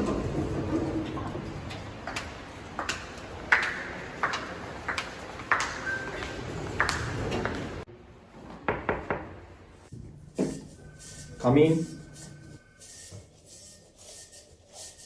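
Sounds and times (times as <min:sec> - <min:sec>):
knocks on a door: 0:08.7 - 0:09.3.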